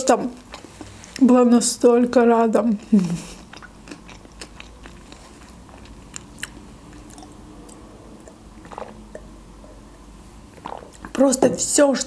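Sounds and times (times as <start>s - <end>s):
person chewing food: 0.4s - 1.2s, 2.8s - 11.2s.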